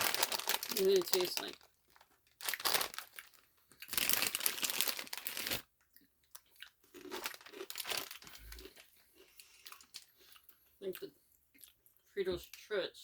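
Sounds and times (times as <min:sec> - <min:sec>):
plastic snack bag crinkling: 0:00.0 - 0:10.1
crunching and chewing snacks: 0:00.0 - 0:12.7.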